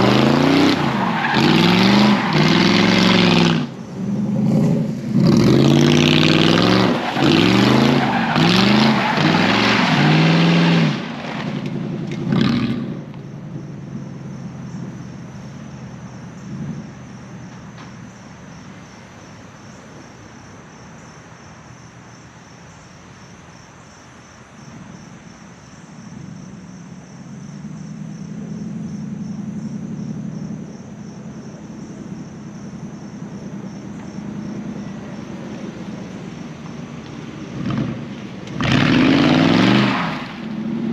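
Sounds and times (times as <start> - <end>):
car engine revving: 0.0 - 13.2, 37.3 - 40.9.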